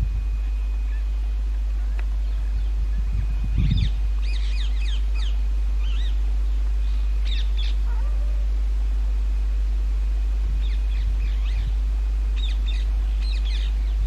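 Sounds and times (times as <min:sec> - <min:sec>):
steady low hum: 0:00.0 - 0:14.0
parakeets squawking: 0:03.5 - 0:06.2, 0:06.8 - 0:08.4, 0:12.4 - 0:14.0.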